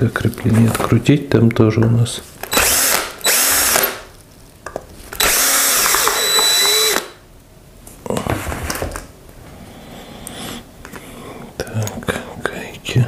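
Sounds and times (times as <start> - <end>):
electric drill spinning: 2.4 - 4.0, 5.2 - 7.2.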